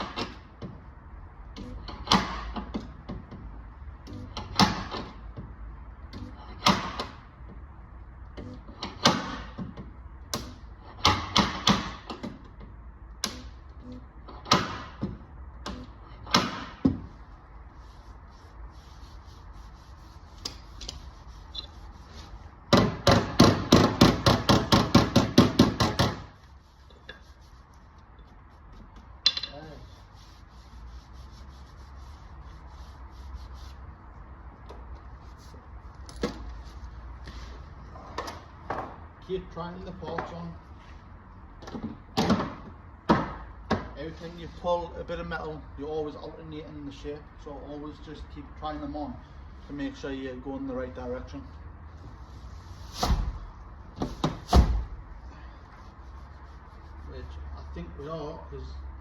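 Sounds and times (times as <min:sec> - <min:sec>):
steady low hum: 0:15.0 - 0:38.0.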